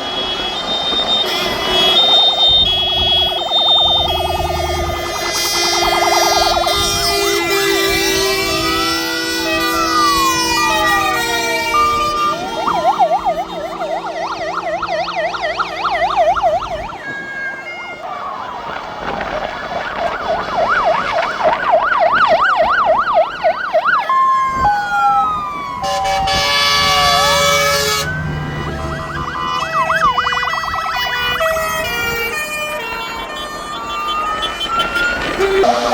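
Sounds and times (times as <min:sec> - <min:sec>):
fire engine sirens: 0:00.0 - 0:35.9
loud buzzy horn blast: 0:00.2 - 0:14.0, 0:25.8 - 0:30.1, 0:31.0 - 0:35.9.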